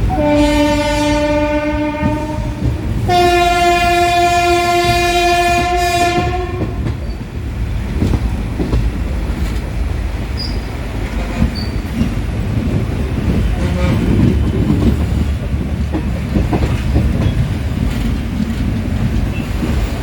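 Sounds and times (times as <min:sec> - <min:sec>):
train horn: 0:00.0 - 0:06.9, 0:11.1 - 0:11.8, 0:13.5 - 0:14.3
train wheels rumbling on rails: 0:00.0 - 0:20.0.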